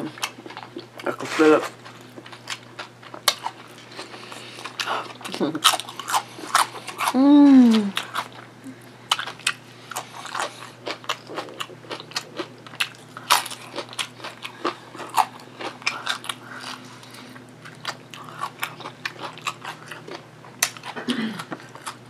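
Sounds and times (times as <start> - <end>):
crunching chips: 1.8 - 7.2, 9.1 - 21.0.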